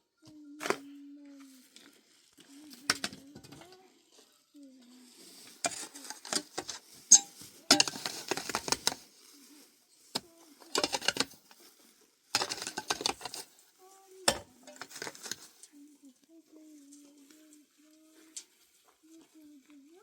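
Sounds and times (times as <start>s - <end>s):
dishes and utensils clattering: 5.7s - 9.0s, 10.7s - 11.6s, 12.4s - 13.5s, 14.3s - 15.5s.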